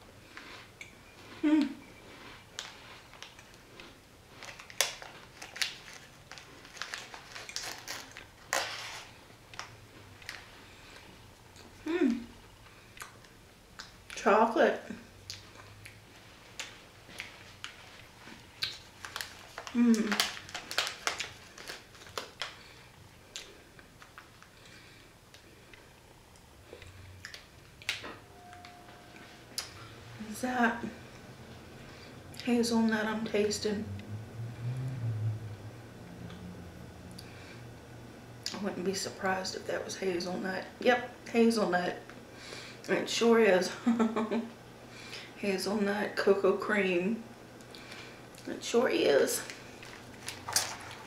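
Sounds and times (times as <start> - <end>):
cookie crunching and chewing: 0.2 - 11.9, 15.0 - 28.0, 49.4 - 51.0.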